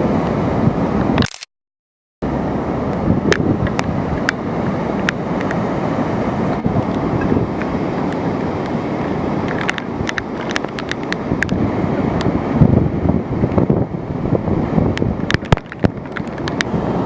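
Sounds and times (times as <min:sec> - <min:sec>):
storm wind buffeting microphone: 0:00.0 - 0:01.2, 0:02.2 - 0:17.0.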